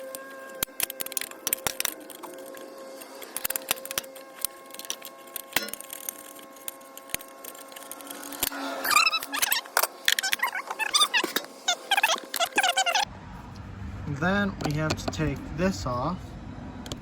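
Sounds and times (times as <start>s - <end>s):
metal parts clicking and rattling: 0.1s - 13.0s
high warbling sound: 8.0s - 13.1s.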